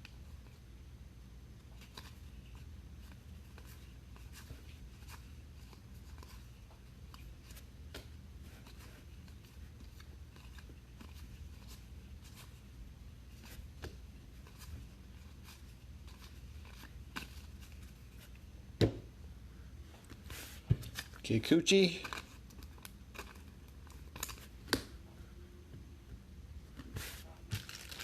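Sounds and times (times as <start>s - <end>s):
low steady hum: 0.0s - 28.0s
cards being flipped through: 22.0s - 25.0s, 26.8s - 28.0s.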